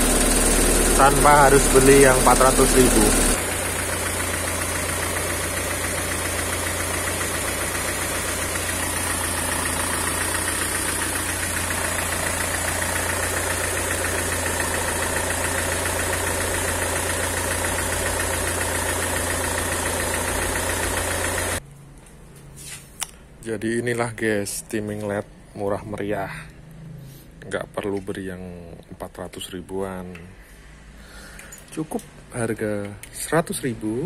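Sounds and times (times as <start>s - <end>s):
car engine idling: 0.0s - 21.6s.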